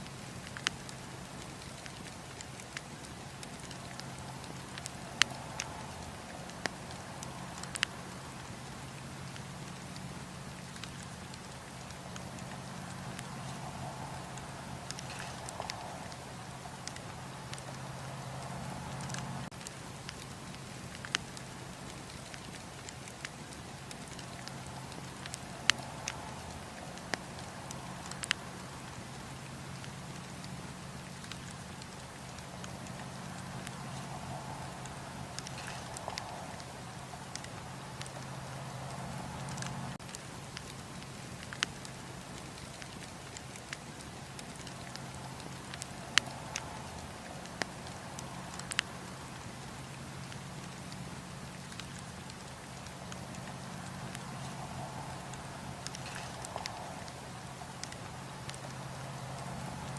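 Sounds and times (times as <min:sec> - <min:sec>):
burning wood popping: 0:00.0 - 0:59.9
campfire crackling: 0:00.0 - 0:59.9.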